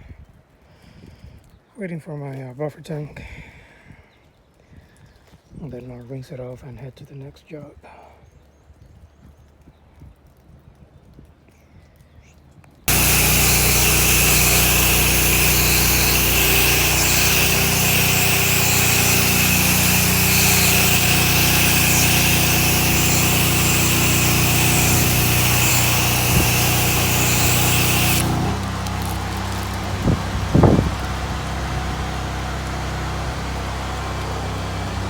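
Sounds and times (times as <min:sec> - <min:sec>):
water spray hissing: 0:12.9 - 0:32.7
pressure washer engine running: 0:12.9 - 0:35.0.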